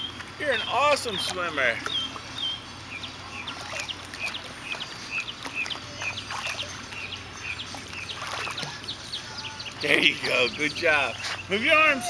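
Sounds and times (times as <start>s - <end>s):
birds chirping: 0.0s - 12.0s
faint water splashing: 3.0s - 12.0s.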